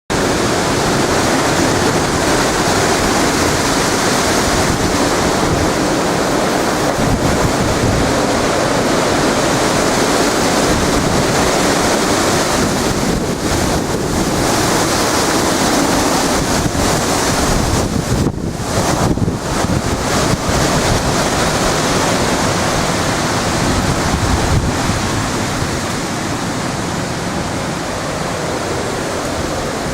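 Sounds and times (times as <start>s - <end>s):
strong wind blowing over microphone: 0.1s - 29.9s.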